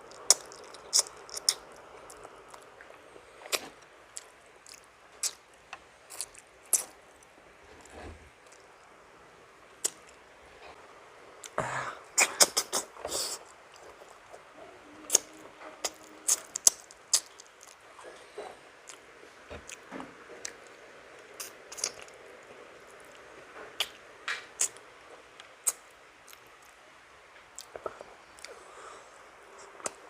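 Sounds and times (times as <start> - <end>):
person chewing food: 0.0 - 8.8, 12.2 - 14.5, 15.1 - 22.2, 27.6 - 28.9.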